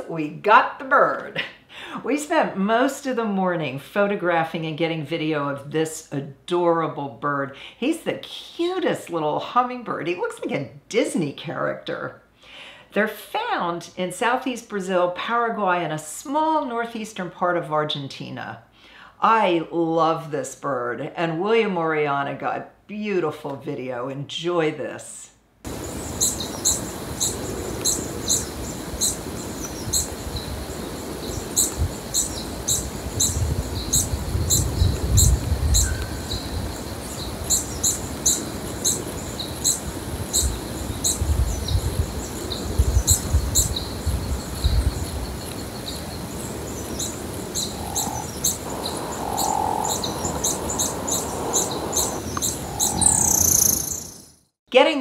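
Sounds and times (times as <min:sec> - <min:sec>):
bird chirping sharply: 0:46.9 - 0:54.5.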